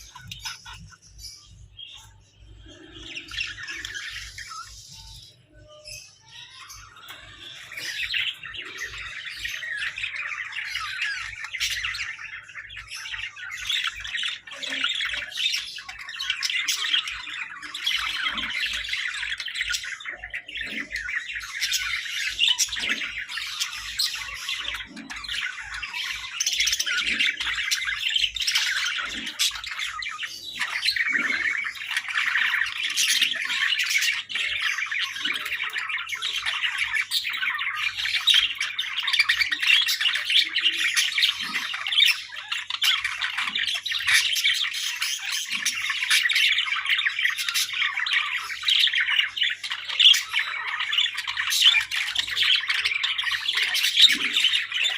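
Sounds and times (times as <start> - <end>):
budgerigars chattering and chirping: 0.0 - 54.9.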